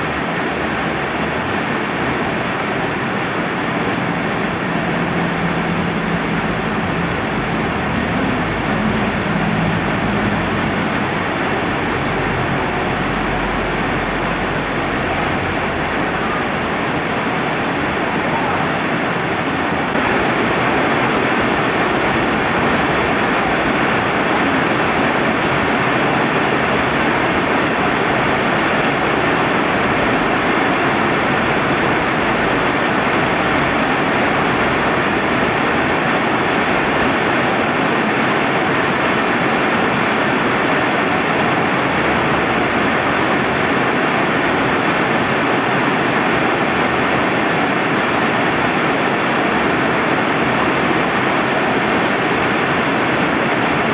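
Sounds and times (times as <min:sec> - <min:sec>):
heavy rain: 0:00.0 - 0:53.9
river running: 0:00.0 - 0:53.9.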